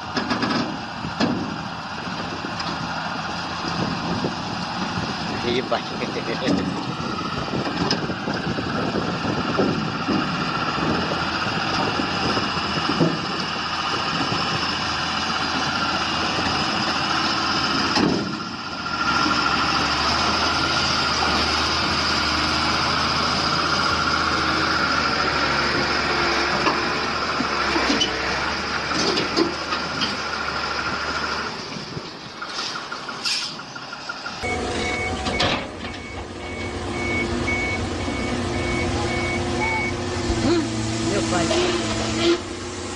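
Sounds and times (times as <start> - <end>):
heavy engines running: 0.0 - 42.9
reversing alarm beeping: 34.4 - 40.0.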